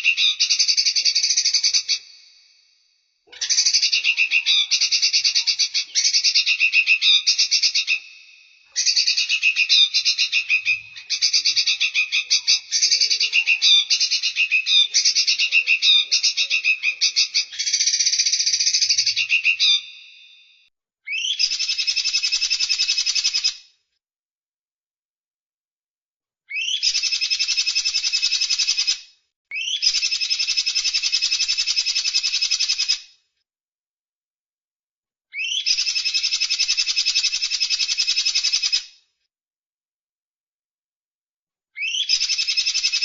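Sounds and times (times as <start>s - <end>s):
songbird trills and chatter: 0.0s - 2.1s, 3.3s - 8.2s, 8.8s - 20.1s.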